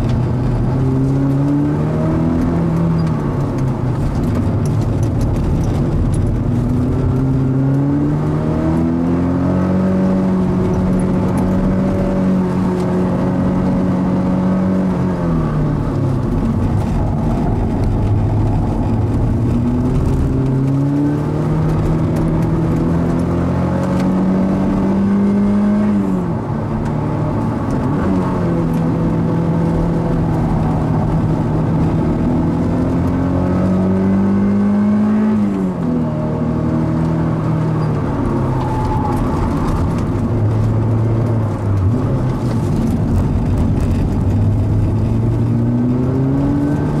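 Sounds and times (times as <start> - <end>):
car engine revving: 0.0 - 47.0.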